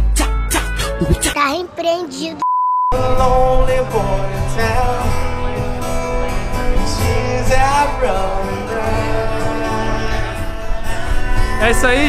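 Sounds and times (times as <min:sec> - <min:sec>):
man singing: 0:02.9 - 0:05.6, 0:06.4 - 0:12.0
acoustic guitars playing: 0:02.9 - 0:12.0.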